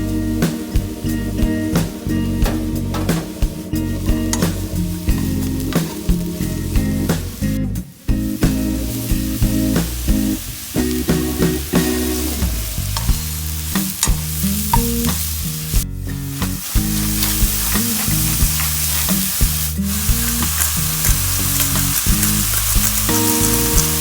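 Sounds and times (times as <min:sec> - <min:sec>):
food sizzling in a frying pan: 0:04.2 - 0:24.0
utensil scraping a pan: 0:16.7 - 0:24.0.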